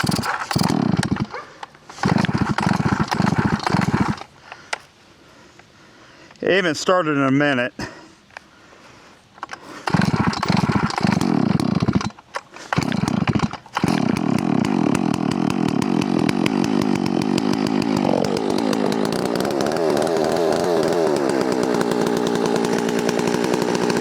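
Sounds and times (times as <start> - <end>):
chainsaw starting and running: 0.0 - 1.3, 1.9 - 4.3, 9.4 - 24.0.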